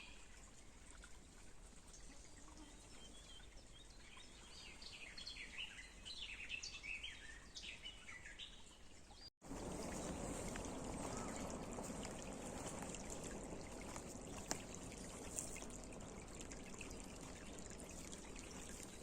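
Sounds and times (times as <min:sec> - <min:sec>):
songbird chirping: 0:02.6 - 0:19.0
faint outdoor hiss: 0:09.4 - 0:19.0
stream water rushing: 0:09.4 - 0:19.0.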